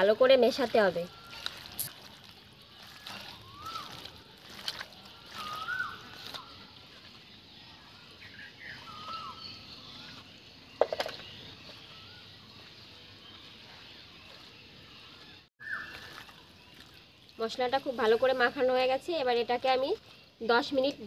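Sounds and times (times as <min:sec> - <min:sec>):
bird whistled call: 0:03.1 - 0:04.0, 0:05.1 - 0:06.6, 0:08.2 - 0:10.2, 0:15.6 - 0:16.3.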